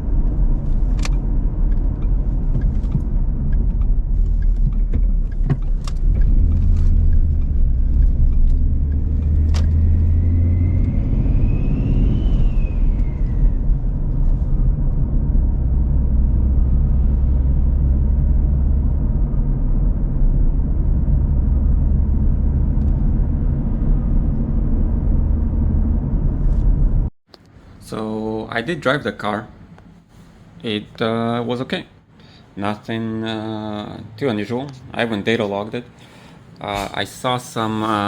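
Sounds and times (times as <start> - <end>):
car engine deep rumble: 0.0 - 38.0
turbo whistle: 10.2 - 13.8.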